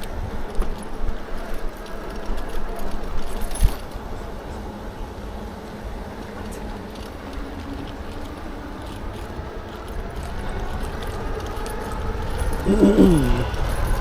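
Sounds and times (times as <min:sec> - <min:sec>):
tyre noise: 0:12.6 - 0:13.6.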